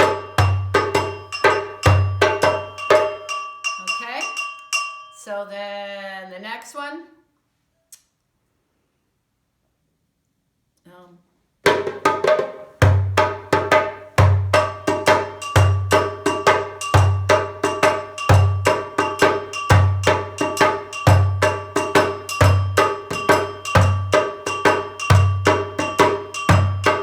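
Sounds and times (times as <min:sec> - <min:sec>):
sharp ringing drum strokes: 0:00.0 - 0:05.4, 0:11.7 - 0:27.0.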